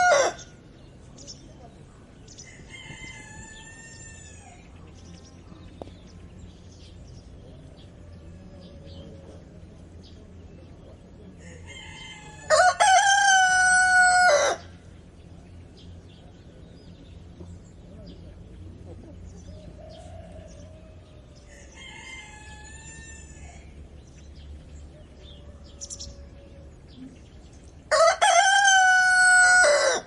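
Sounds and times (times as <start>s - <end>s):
rooster crowing: 0.0s - 0.5s, 11.6s - 14.7s, 19.8s - 23.7s, 27.9s - 30.0s.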